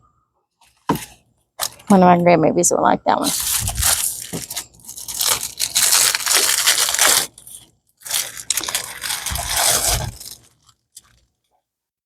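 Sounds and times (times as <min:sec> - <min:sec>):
plastic packaging crinkling: 0:03.2 - 0:11.4.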